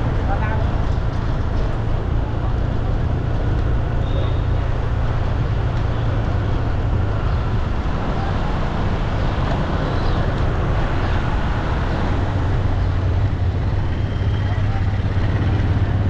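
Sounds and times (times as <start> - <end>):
street traffic engine hum: 0.0 - 16.0.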